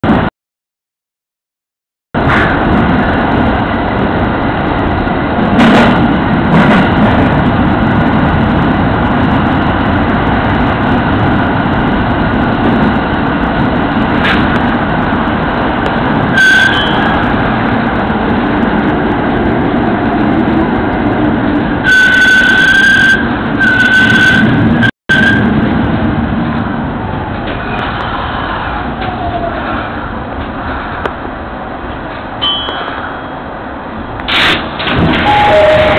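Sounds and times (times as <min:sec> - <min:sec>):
train wheels rumbling on rails: 0:02.2 - 0:35.9
high-pitched tone: 0:35.2 - 0:35.9.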